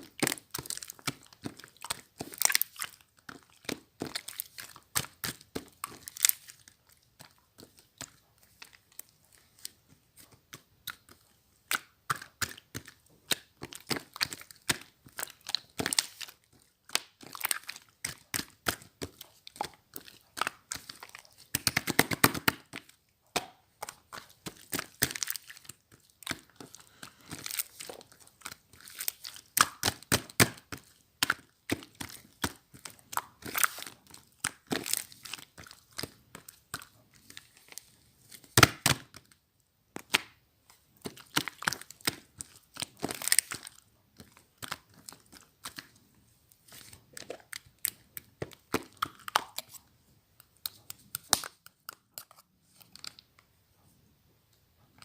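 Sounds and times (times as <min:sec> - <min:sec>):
slime squeezed by hand crackling: 0:00.0 - 0:39.4.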